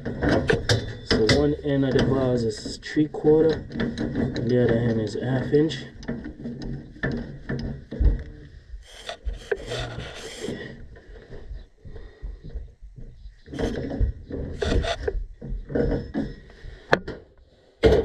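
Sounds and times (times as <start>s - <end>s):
rasping noise: 8.6s - 11.5s, 13.2s - 16.8s.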